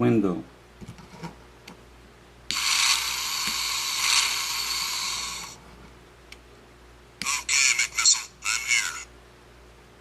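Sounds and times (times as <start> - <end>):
toy car mechanical sound effect: 2.5 - 5.6.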